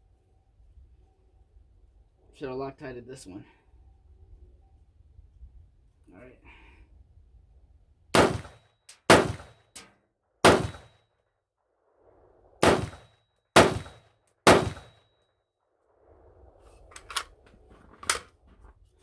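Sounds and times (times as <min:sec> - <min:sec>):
rifle shots: 0:08.2 - 0:10.9, 0:12.6 - 0:15.0.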